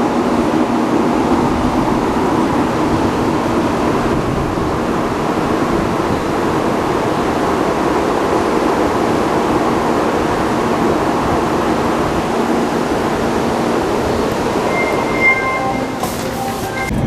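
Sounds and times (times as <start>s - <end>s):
high speed train rumbling: 0.0s - 17.0s.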